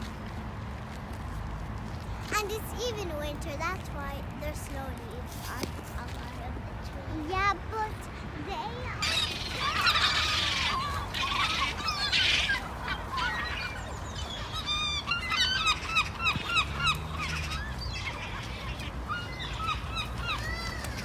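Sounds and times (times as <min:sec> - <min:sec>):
flock of birds squawking: 0:09.0 - 0:21.0.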